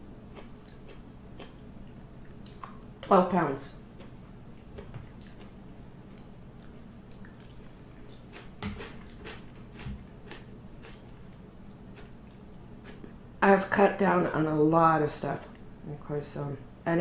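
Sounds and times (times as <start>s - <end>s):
person chewing food: 0.3s - 2.9s, 3.9s - 13.2s.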